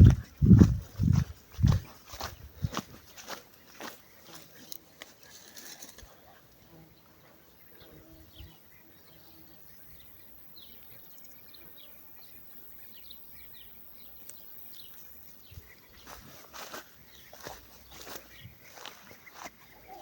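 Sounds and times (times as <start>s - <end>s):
songbirds chirping: 0.0s - 20.0s
soft outdoor hiss: 1.2s - 20.0s
rustle: 2.2s - 6.9s.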